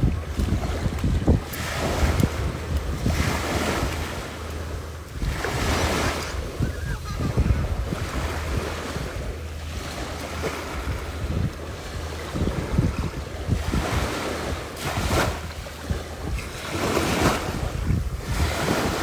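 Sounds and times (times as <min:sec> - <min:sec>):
waves washing onto beach: 0:00.0 - 0:19.0
wind buffeting microphone: 0:00.0 - 0:19.0.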